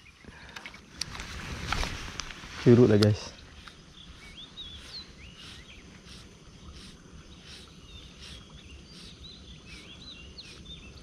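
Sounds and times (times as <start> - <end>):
pulsing outdoor hiss: 0.0 - 11.0
songbird warbling: 3.0 - 11.0.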